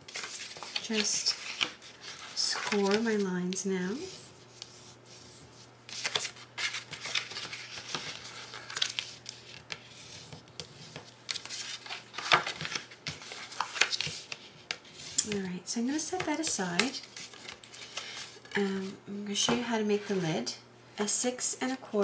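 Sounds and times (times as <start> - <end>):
paper rustling: 0.0 - 3.3, 4.1 - 15.3.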